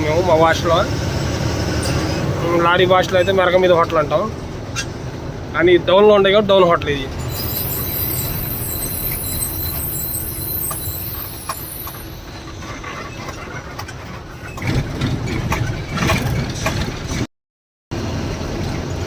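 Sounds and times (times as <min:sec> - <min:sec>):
road and engine rumble in cab: 0:00.0 - 0:17.3, 0:17.9 - 0:19.0
high hiss: 0:07.3 - 0:12.2.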